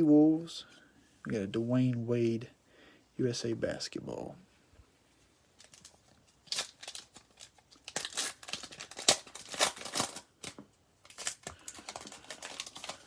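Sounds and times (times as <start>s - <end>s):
plastic wrapper ripping and crinkling: 5.6s - 13.0s.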